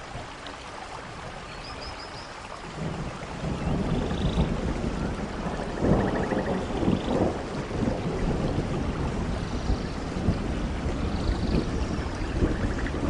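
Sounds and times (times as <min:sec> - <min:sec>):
steady rain: 0:00.0 - 0:13.0
thunder rumbling: 0:02.7 - 0:13.0.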